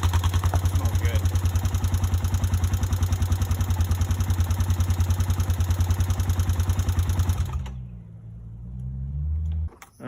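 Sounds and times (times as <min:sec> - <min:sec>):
engine running at high idle: 0:00.0 - 0:08.0.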